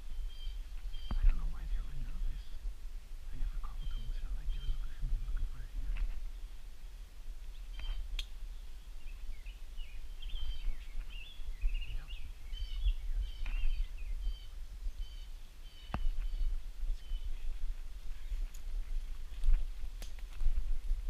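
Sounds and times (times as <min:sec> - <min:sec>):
small birds chirping: 0:00.0 - 0:06.6, 0:07.4 - 0:20.1
steady low rumble: 0:00.0 - 0:21.0
faint sharp clicks: 0:07.7 - 0:08.4, 0:19.4 - 0:20.4.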